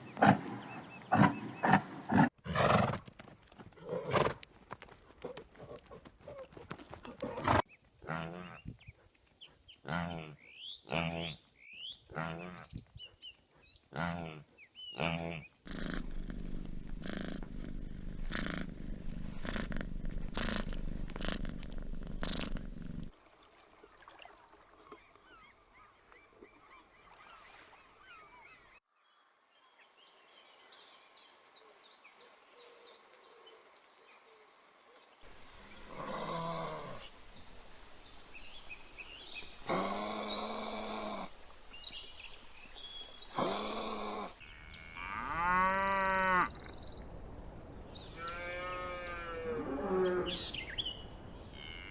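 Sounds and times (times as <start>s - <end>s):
low pulsing animal rumble: 15.7s - 23.2s.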